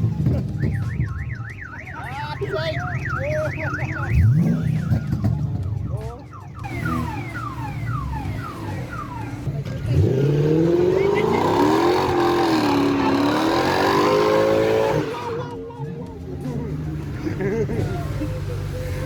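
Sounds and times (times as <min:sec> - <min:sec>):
car alarm siren: 0:00.4 - 0:15.4
car engine revving: 0:03.9 - 0:05.7, 0:06.6 - 0:15.6.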